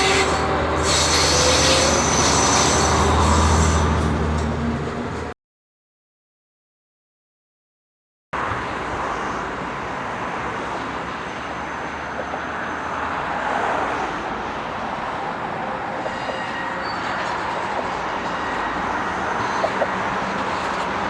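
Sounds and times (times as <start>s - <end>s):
train wheels on rails: 0.0s - 5.3s, 10.0s - 21.0s.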